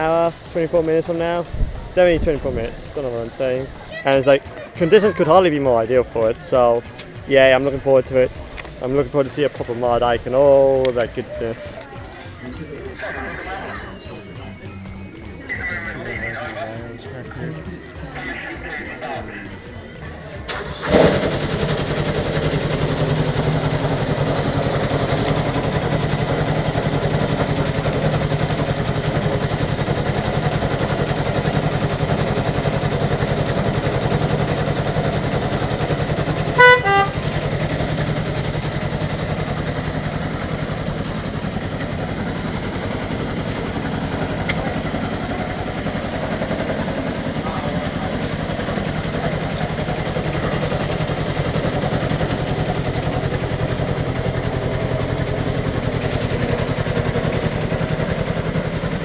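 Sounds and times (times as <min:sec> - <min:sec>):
locomotive engine running: 0:00.0 - 0:59.0
short horn toot: 0:36.6 - 0:37.3.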